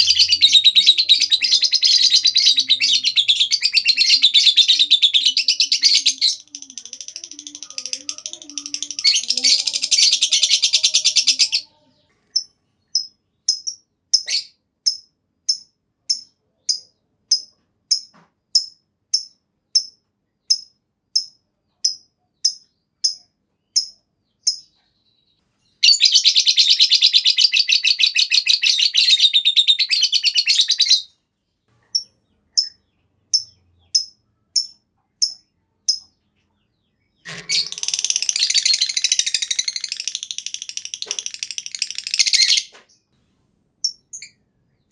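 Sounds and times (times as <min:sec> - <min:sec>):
lovebird trilling: 0:00.0 - 0:11.7, 0:37.2 - 0:42.7.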